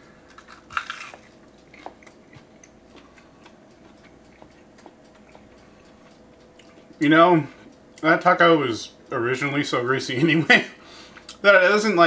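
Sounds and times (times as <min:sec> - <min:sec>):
taco crunch: 0:00.0 - 0:05.8
chewing with wet clicks: 0:00.2 - 0:07.0.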